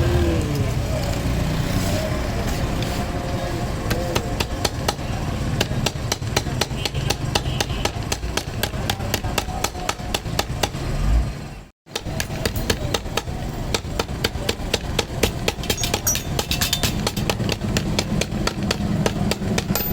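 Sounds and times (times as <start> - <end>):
hammer tapping rapidly: 3.9 - 10.8, 11.9 - 19.9.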